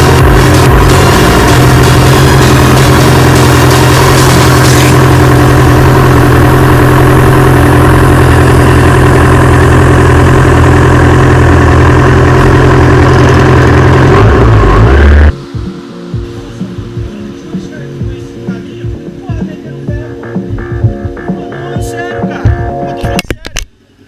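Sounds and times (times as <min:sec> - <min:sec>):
motorcycle engine running: 0:00.0 - 0:23.4.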